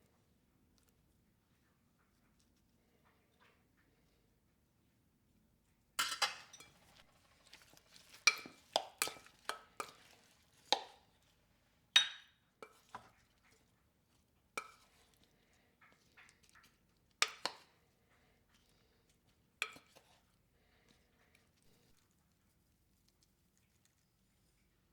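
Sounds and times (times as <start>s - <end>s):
dishes and glassware clinking: 6.0s - 7.1s, 12.0s - 13.0s.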